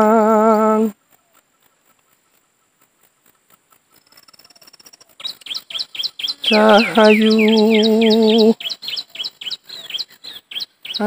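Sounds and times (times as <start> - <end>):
bird trilling and chirping: 3.3 - 11.0.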